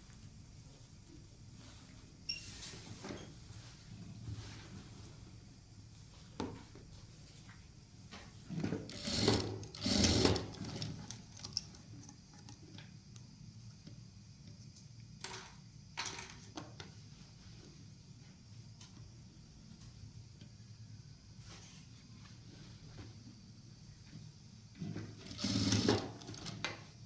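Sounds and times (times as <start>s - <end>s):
sewing machine running: 8.9s - 11.5s, 25.2s - 26.6s.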